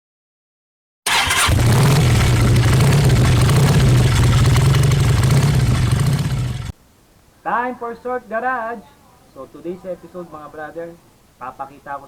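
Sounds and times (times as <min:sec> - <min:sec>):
motorcycle engine rumbling: 0:01.1 - 0:06.8.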